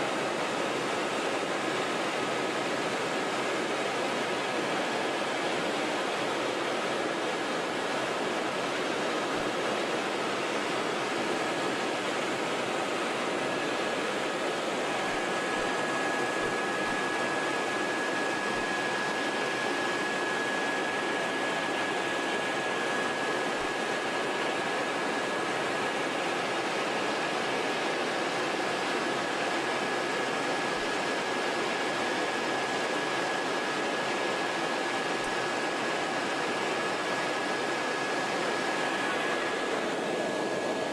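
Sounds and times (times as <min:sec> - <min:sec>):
faint high whine: 0:00.0 - 0:40.9
helicopter cabin drone: 0:00.0 - 0:40.9.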